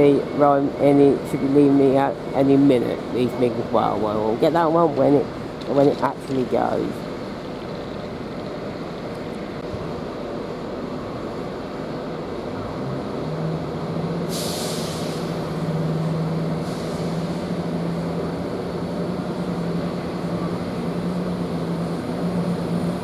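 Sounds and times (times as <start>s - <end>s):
train diesel engines opening up: 0.0s - 23.0s
air hiss bursts: 14.3s - 15.4s, 16.6s - 17.5s.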